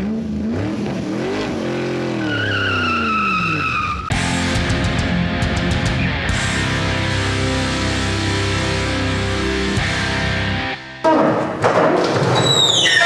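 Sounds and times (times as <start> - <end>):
music: 4.1 - 12.7
garage door squeaking and squealing: 11.1 - 13.0.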